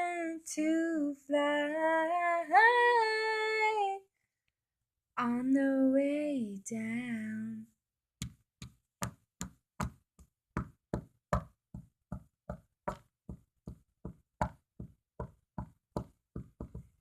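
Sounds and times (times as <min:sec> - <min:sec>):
rhythmic knocking on hard surface: 0:08.2 - 0:10.0, 0:10.6 - 0:17.0.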